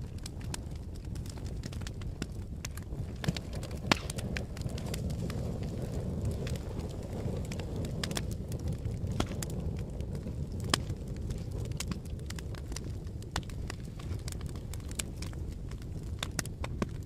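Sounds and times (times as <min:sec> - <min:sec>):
fire crackling and popping: 0:00.0 - 0:17.0
wood fire low rush: 0:00.0 - 0:17.0.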